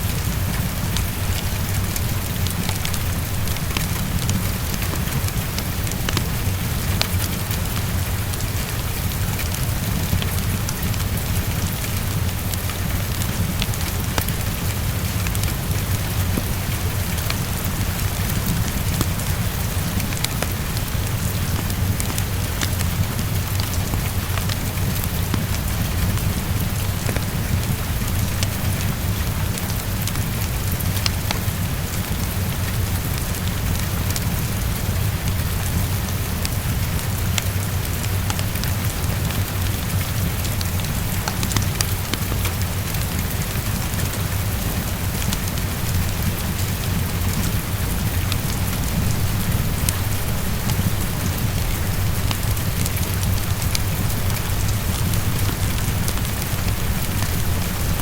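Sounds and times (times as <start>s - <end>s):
constant low rumble: 0.0s - 58.0s
heavy rain on a window: 0.0s - 58.0s
fireplace crackling: 37.3s - 58.0s.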